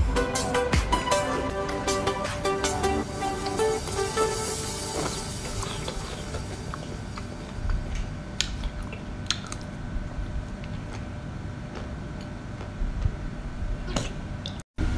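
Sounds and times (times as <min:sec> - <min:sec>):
chewing with wet smacking: 0:05.0 - 0:13.2.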